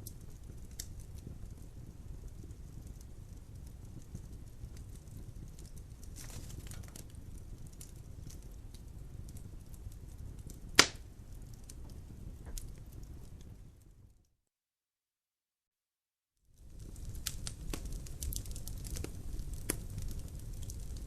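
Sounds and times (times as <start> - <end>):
fire crackling: 0.0 - 14.2, 16.5 - 21.0
low rumble of fire: 0.0 - 14.3, 16.5 - 21.0
loud sharp pop: 10.8 - 11.0.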